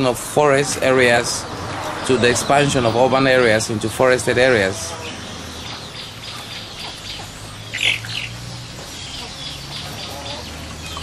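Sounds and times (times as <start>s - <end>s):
birds chirping: 0.0s - 11.0s
bird squawking call: 4.5s - 8.4s.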